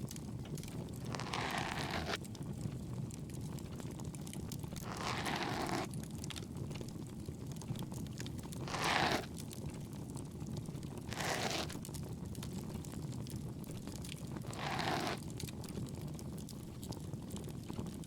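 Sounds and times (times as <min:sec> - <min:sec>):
ear pick scraping: 0:01.1 - 0:02.2, 0:04.8 - 0:05.9, 0:08.7 - 0:09.3, 0:11.1 - 0:11.8, 0:14.5 - 0:15.2.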